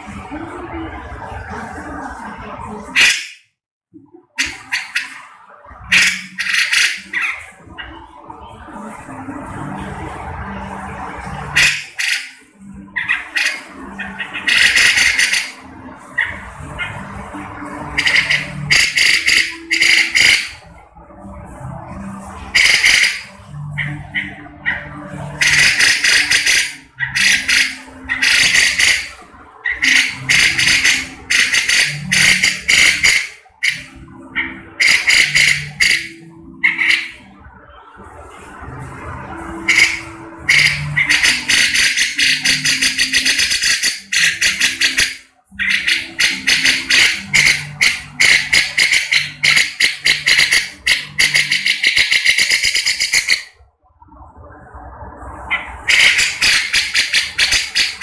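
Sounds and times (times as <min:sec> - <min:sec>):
bird rattling chatter calls: 0:04.4 - 0:05.2, 0:05.9 - 0:07.4, 0:11.5 - 0:12.4, 0:13.0 - 0:15.6, 0:17.8 - 0:20.6, 0:22.5 - 0:37.2, 0:39.7 - 0:53.5, 0:55.5 - 0:58.0.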